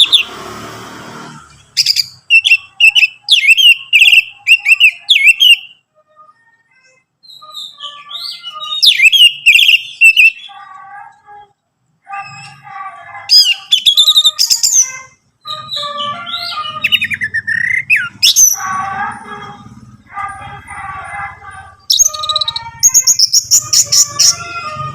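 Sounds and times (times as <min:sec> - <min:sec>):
thrush singing: 0:00.0 - 0:24.9
buzzy bird chatter: 0:12.1 - 0:19.1, 0:20.2 - 0:24.8.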